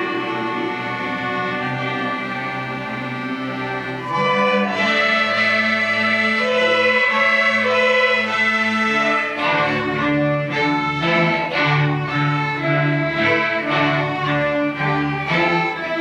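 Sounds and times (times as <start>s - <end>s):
string orchestra playing: 0.0s - 16.0s.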